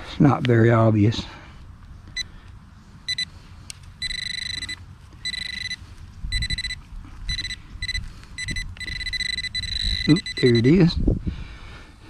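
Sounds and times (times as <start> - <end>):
pinpointer probe beeping: 3.1 - 3.3, 4.0 - 10.9.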